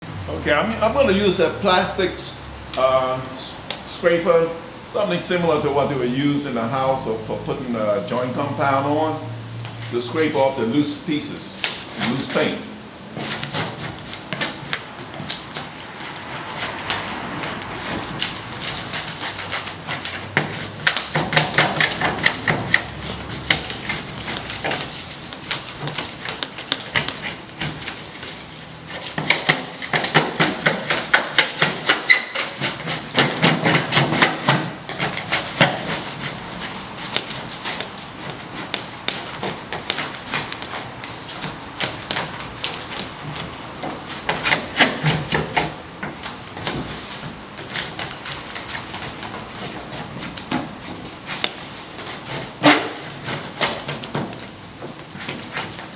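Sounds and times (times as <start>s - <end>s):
plastic scraper scraping paint: 11.6s - 55.9s.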